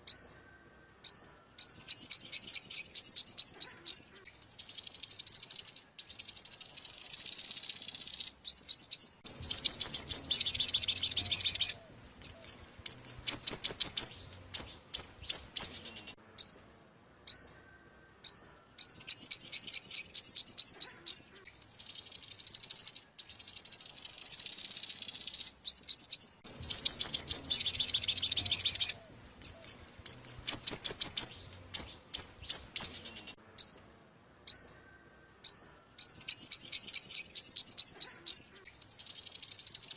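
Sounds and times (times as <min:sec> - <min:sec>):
sunbird singing trills: 0:00.0 - 0:39.9.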